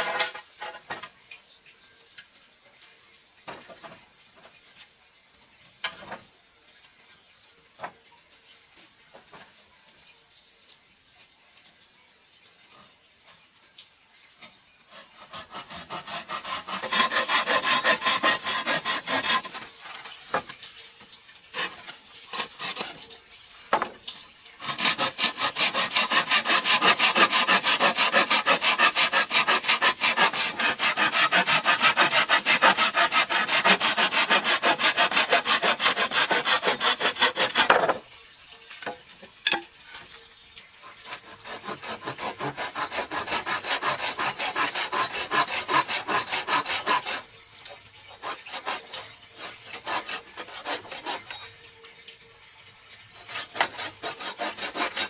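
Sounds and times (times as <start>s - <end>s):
hand tool working wood: 0.0s - 1.0s, 14.9s - 20.5s, 21.5s - 23.1s, 24.6s - 38.0s, 40.9s - 47.2s, 48.1s - 51.4s, 53.2s - 55.0s.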